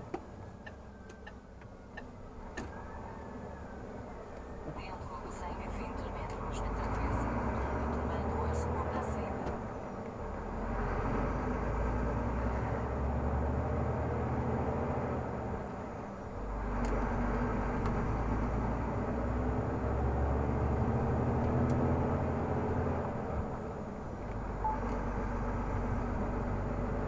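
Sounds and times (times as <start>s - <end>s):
diesel truck engine droning: 0.0s - 27.0s.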